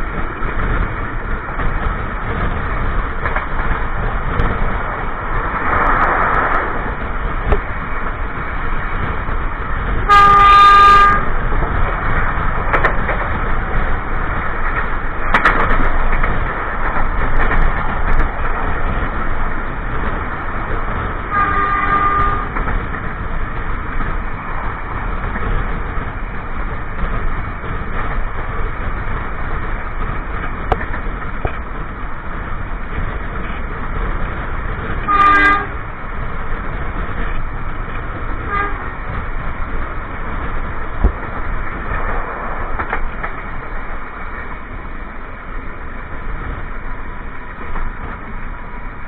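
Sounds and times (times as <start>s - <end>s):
train wheels rumbling on rail: 0.0s - 49.0s
train horn: 10.1s - 11.4s, 21.3s - 22.6s, 35.0s - 35.8s, 38.4s - 39.0s.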